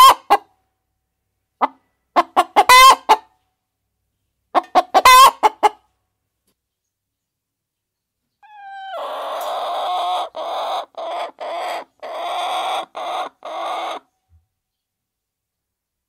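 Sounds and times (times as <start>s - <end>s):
chicken calling: 1.6s - 3.2s, 4.6s - 5.8s, 8.4s - 14.2s.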